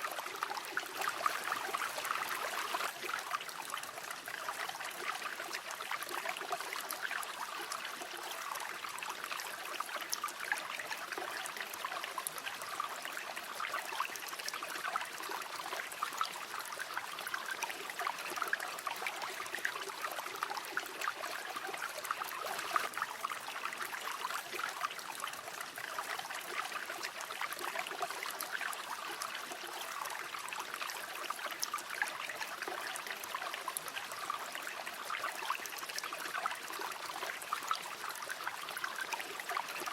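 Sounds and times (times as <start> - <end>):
river water running over stones: 0.0 - 39.9.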